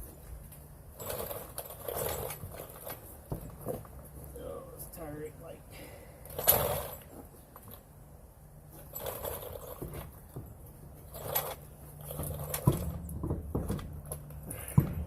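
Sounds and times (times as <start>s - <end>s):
knocks and scrapes on metal: 8.8s - 15.0s.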